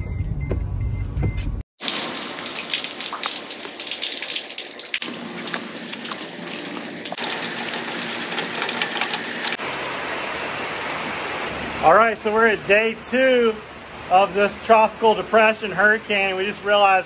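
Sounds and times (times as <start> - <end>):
raindrops spattering off roof: 1.8 - 9.6
downspout gushing onto concrete: 1.8 - 17.0
steady downpour: 9.6 - 17.0.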